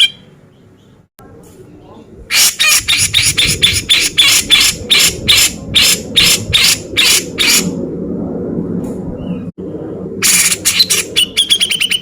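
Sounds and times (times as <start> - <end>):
bird singing harsh rasping notes: 9.2 - 12.0.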